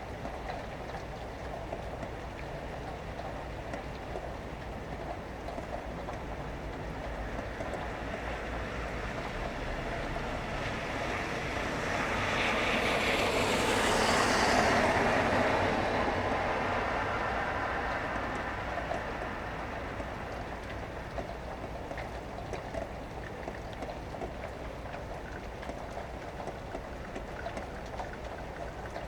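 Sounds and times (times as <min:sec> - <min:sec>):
steady rain: 0:00.0 - 0:29.0
tyres hissing on wet road: 0:08.1 - 0:20.5.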